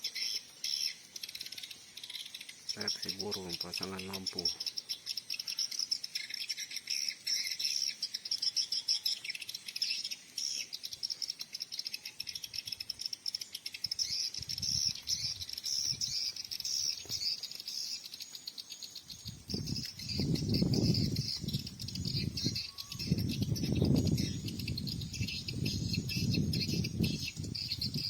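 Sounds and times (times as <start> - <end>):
swiftlets twittering: 0.2 - 6.6.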